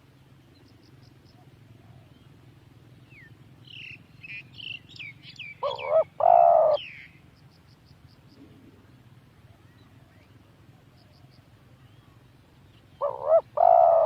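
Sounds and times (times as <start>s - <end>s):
small birds chirping: 0.5s - 14.0s
dove cooing: 5.6s - 6.8s, 13.0s - 14.0s.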